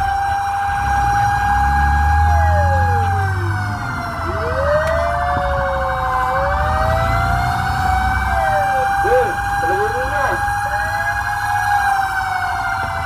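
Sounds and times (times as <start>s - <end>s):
wailing siren: 0.0s - 13.0s
truck engine rumbling: 0.6s - 11.8s
warbling siren: 0.7s - 13.0s.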